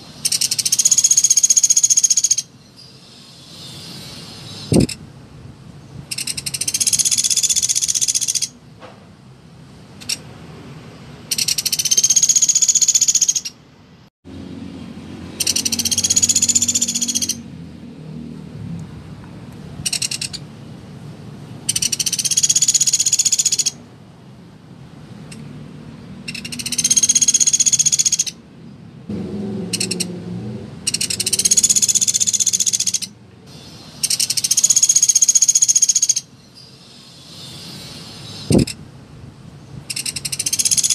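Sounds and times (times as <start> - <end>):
woodpecker rattling trill: 0.2 - 2.5, 6.1 - 8.6, 11.3 - 13.6, 15.4 - 17.4, 19.9 - 20.4, 21.7 - 23.8, 26.2 - 28.4, 29.7 - 30.1, 30.8 - 38.8, 39.9 - 40.9.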